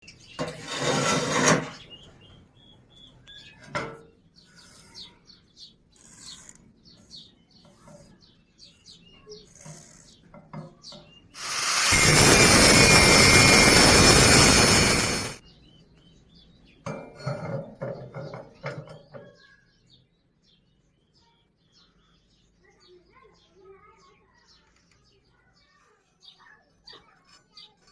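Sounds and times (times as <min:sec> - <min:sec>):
birds chirping: 0:00.0 - 0:00.5, 0:01.6 - 0:27.9
welding arc hissing crackle: 0:11.4 - 0:15.4.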